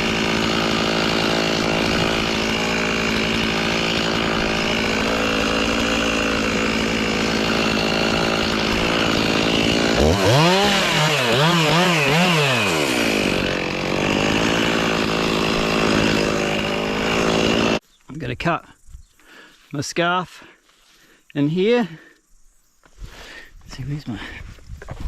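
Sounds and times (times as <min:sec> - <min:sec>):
chainsaw revving: 0:00.0 - 0:17.8.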